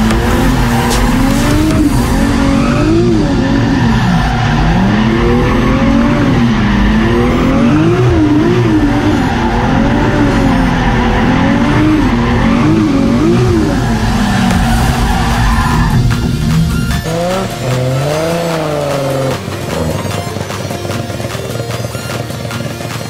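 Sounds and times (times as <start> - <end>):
car engine revving: 0.0 - 23.0
tyres skidding: 0.0 - 23.0.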